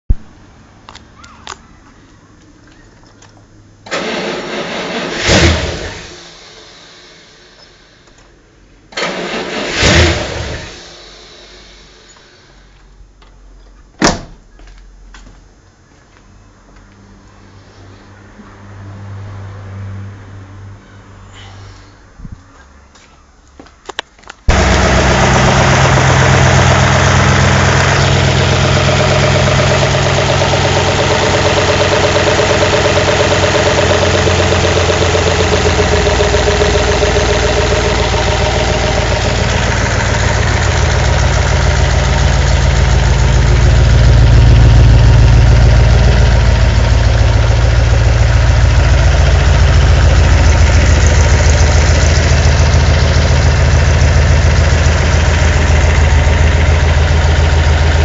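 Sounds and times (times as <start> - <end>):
car engine idling: 24.5 - 58.0.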